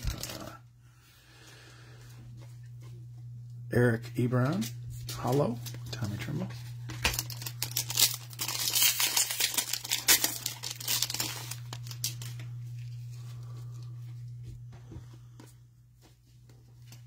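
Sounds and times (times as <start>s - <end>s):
foil wrapper tearing and crinkling: 0.0s - 0.5s, 7.0s - 12.9s
low electrical hum: 0.0s - 17.0s.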